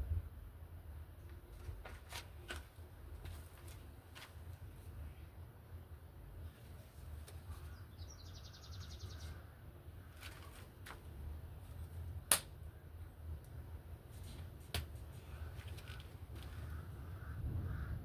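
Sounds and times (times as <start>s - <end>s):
crow cawing: 16.5s - 18.0s.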